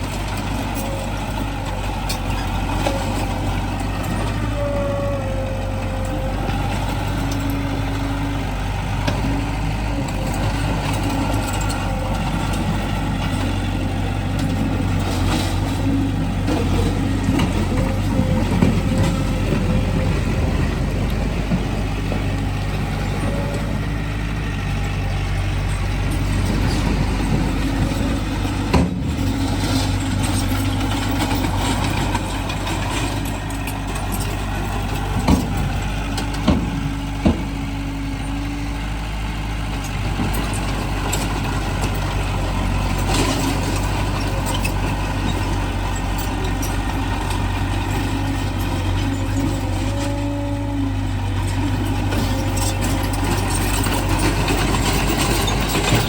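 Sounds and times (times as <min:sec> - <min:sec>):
heavy machinery diesel engines: 0:00.0 - 0:56.0.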